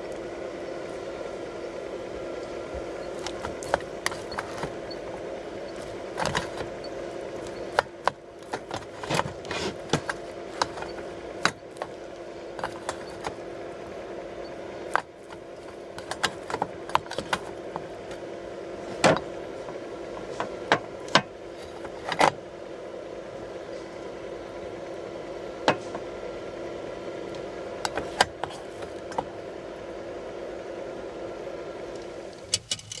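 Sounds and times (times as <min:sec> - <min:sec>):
engine idling: 0:00.0 - 0:22.2.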